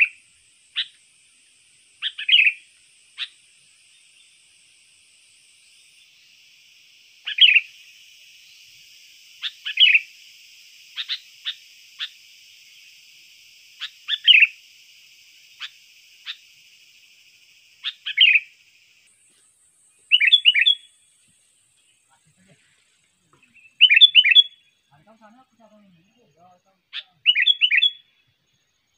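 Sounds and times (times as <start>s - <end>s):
bulbul calling sharp notes: 2.0s - 3.4s, 7.2s - 7.7s, 20.1s - 20.9s, 23.4s - 28.1s.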